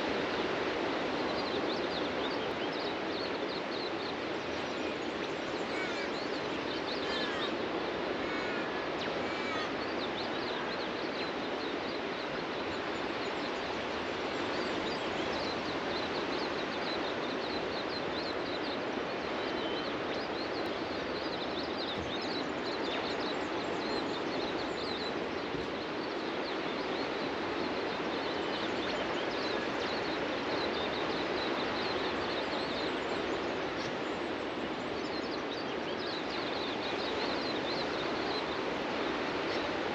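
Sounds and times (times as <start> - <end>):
birds chirping: 0.0 - 39.9
ocean surf on a beach: 0.0 - 39.9
low bird calls: 1.6 - 11.5.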